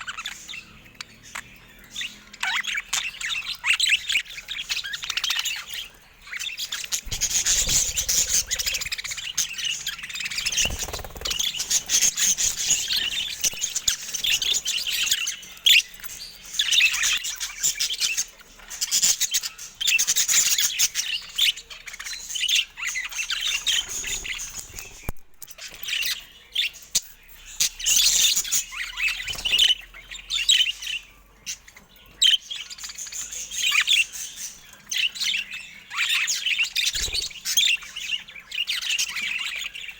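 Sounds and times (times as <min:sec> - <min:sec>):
budgerigars chattering: 0:00.0 - 0:25.1.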